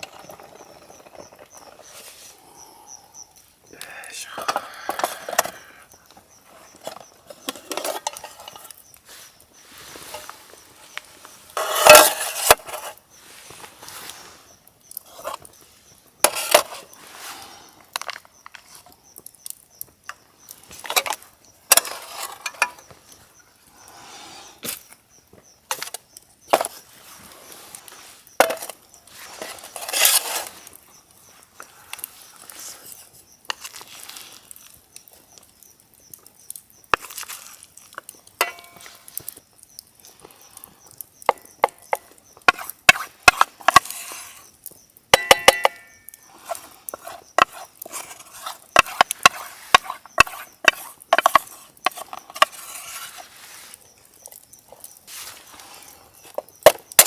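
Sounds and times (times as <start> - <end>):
cookware clinking and knocking: 38.4 - 38.9, 45.2 - 46.0.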